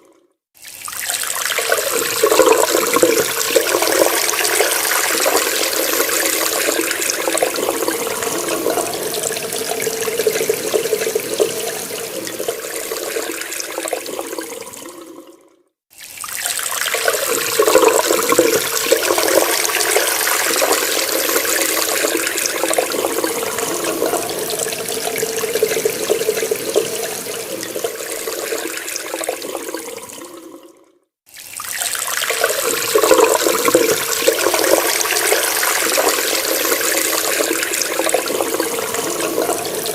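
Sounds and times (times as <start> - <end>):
water running from a tap: 0.6 - 15.2, 15.9 - 30.6, 31.3 - 39.9.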